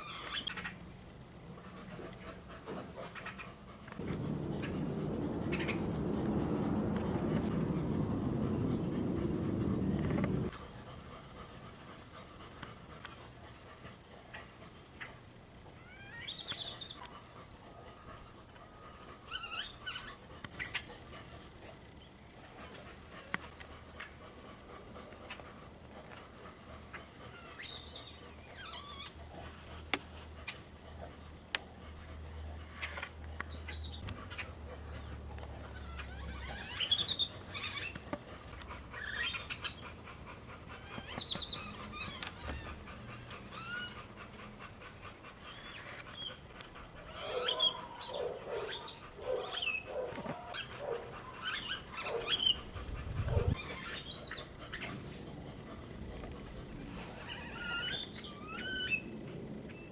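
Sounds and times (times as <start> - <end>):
animal chirps and squeaks: 15.8 - 17.0, 27.3 - 29.2, 33.7 - 38.1, 38.9 - 39.9, 40.7 - 44.1, 44.9 - 46.4, 50.5 - 55.0, 57.0 - 59.1.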